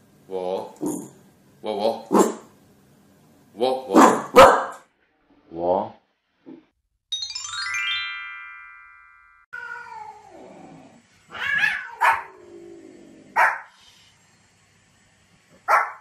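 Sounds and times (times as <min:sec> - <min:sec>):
dog barking: 0:02.1 - 0:02.4, 0:03.9 - 0:04.8, 0:11.6 - 0:12.3, 0:13.4 - 0:13.7, 0:15.6 - 0:16.0
rising chime-like sweep: 0:07.1 - 0:09.5
cat meowing: 0:09.6 - 0:10.6, 0:11.3 - 0:12.4.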